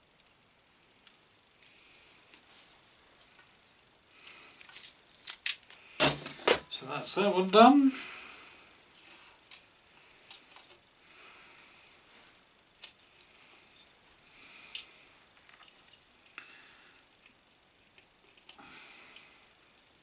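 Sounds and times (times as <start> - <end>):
rustles of hands working wires: 0.1 - 7.9
light clicks of small tools: 14.7 - 19.9.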